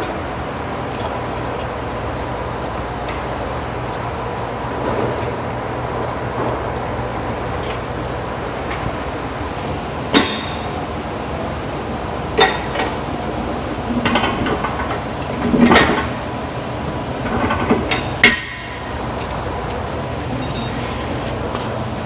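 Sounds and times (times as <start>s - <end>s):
steady shop hum: 0.0s - 22.0s
metal tools clanking: 20.1s - 22.0s.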